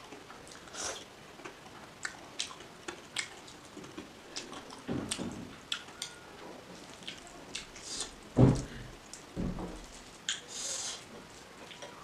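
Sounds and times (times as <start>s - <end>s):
person chewing: 0.1s - 6.2s, 6.8s - 8.2s.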